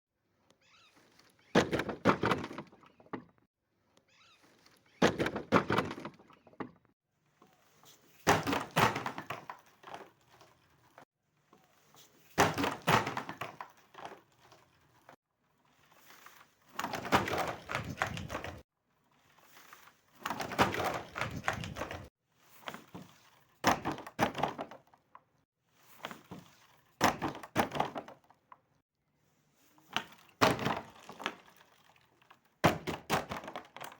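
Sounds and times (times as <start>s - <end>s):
objects crushed with cracks and crunches: 29.8s - 33.9s.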